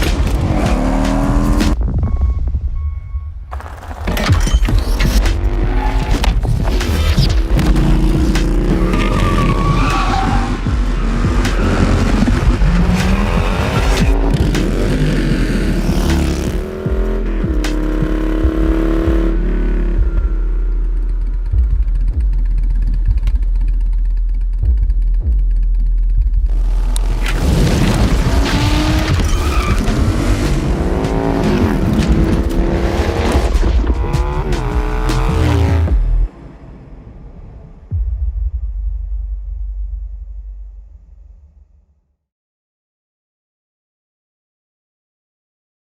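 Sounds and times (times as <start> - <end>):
motorcycle engines revving: 5.2 - 25.1, 26.5 - 36.3.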